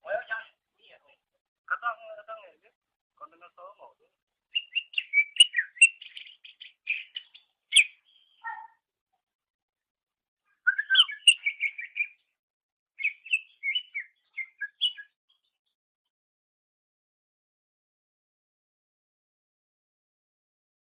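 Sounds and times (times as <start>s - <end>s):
bird chirping and whistling: 4.5s - 8.6s, 10.6s - 12.2s, 13.0s - 15.1s.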